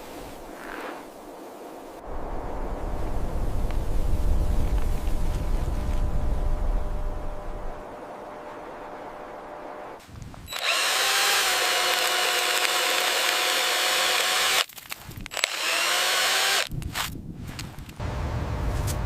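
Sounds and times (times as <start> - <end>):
drill-like motor whirring: 10.5 - 14.7, 15.3 - 16.7.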